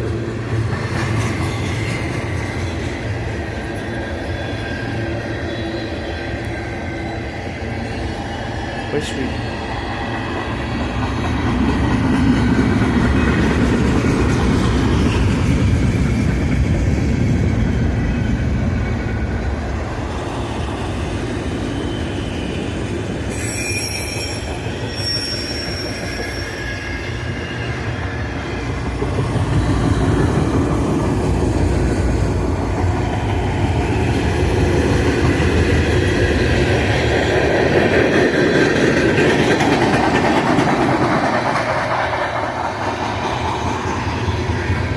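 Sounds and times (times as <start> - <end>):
train cars rumbling on rails: 0.0 - 44.9
high wheel squeal: 1.3 - 10.8, 20.1 - 28.6.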